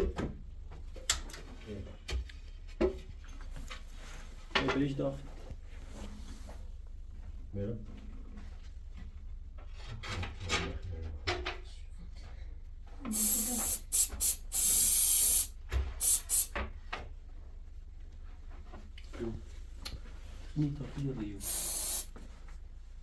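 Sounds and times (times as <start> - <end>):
hissing spray bursts: 13.1 - 16.5, 21.4 - 22.2.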